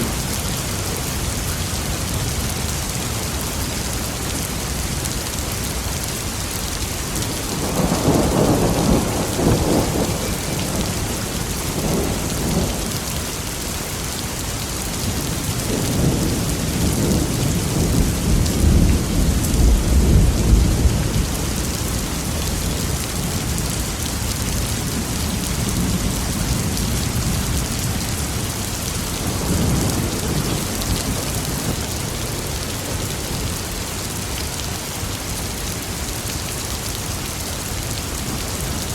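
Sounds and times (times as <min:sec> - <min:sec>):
heavy rain: 0:00.0 - 0:38.9
thunder rumbling: 0:07.5 - 0:13.1, 0:15.6 - 0:23.8, 0:24.4 - 0:33.4.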